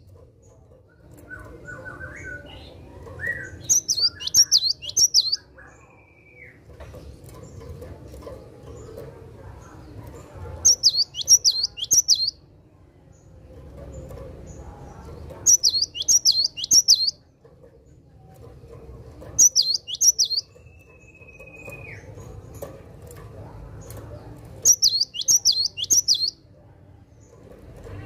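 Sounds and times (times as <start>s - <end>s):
bird singing whistled notes: 3.2s - 5.4s, 10.7s - 12.4s, 15.5s - 17.2s, 19.4s - 22.1s, 24.6s - 26.4s.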